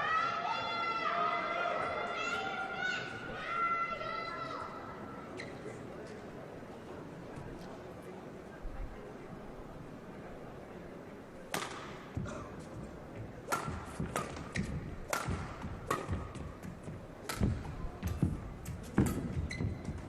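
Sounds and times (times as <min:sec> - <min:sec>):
rackets striking shuttlecock: 0:11.5 - 0:12.0, 0:13.5 - 0:20.0
footsteps thudding on court: 0:14.0 - 0:20.0.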